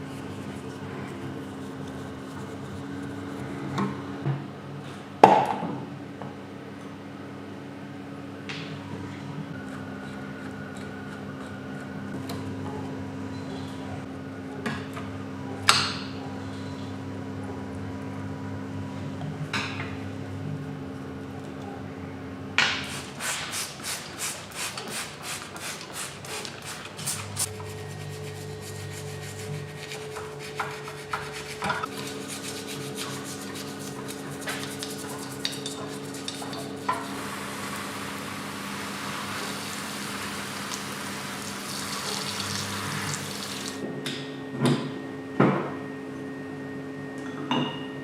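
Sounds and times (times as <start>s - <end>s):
steady low hum: 26.8s - 44.0s.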